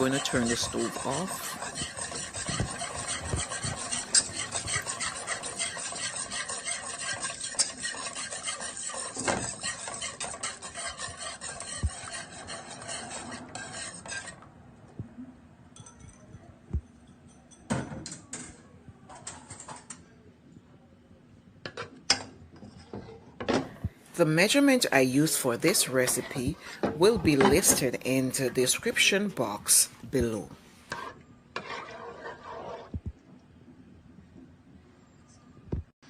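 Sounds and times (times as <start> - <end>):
utensil stirring and scraping pan: 0.0 - 14.5, 21.7 - 23.5, 24.4 - 33.4.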